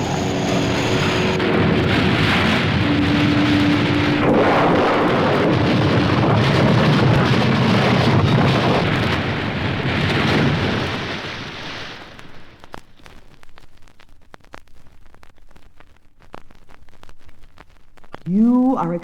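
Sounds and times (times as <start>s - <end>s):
roaring surf and rushing water: 0.0s - 12.6s
vinyl record crackle: 0.0s - 19.0s.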